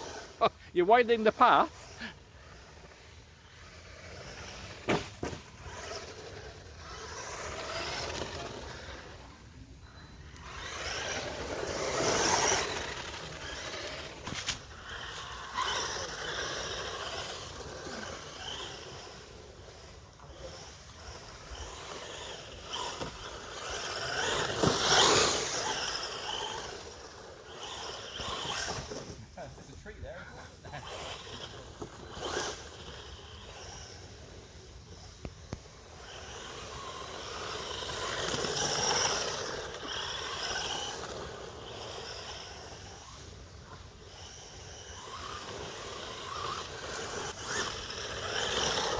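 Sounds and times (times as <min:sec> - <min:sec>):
electric motor whine: 0:00.0 - 0:48.9
tyres scrabbling over dirt: 0:03.8 - 0:09.2, 0:10.4 - 0:29.7.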